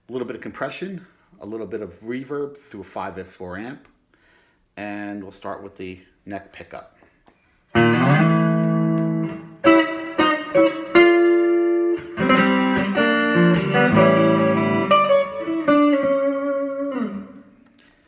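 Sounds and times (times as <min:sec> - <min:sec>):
electric guitar chords and notes: 0:07.7 - 0:18.0.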